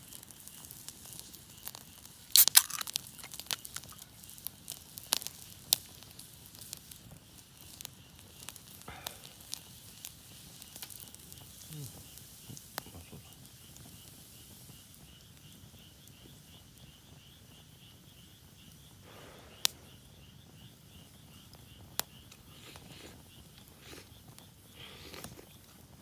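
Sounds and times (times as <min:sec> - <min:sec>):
insect chirping: 0:00.1 - 0:26.0
sharp cracks: 0:02.3 - 0:04.0.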